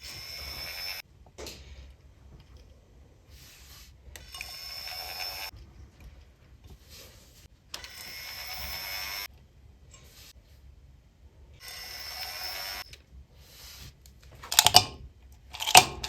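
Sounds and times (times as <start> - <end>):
small electric motor whining: 0.0 - 1.0, 4.2 - 5.6, 7.8 - 9.3, 11.6 - 12.9.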